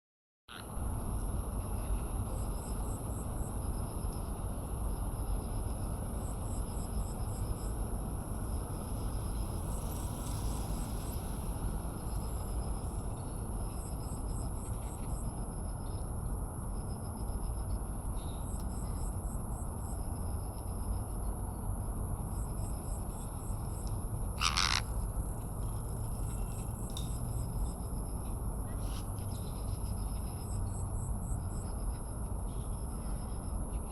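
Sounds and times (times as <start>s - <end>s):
constant high whine: 0.5s - 33.9s
insects chirping: 0.5s - 33.9s
loud bird call: 24.4s - 24.9s.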